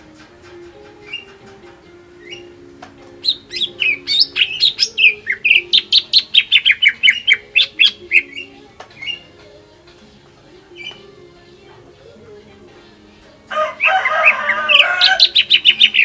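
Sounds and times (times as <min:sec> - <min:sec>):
bird singing chirping notes: 0:00.6 - 0:09.7, 0:10.6 - 0:11.3, 0:13.6 - 0:16.0.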